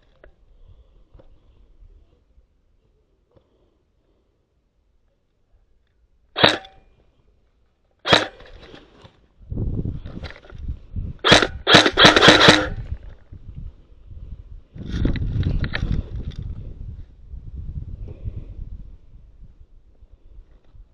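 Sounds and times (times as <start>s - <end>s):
airsoft gun shots: 6.4s - 6.8s, 8.0s - 8.6s, 11.2s - 12.9s.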